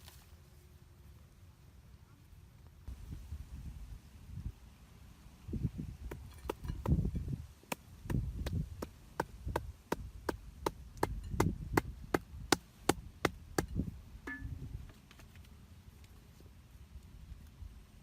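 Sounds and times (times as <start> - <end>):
dull low thuds: 5.6 - 14.9.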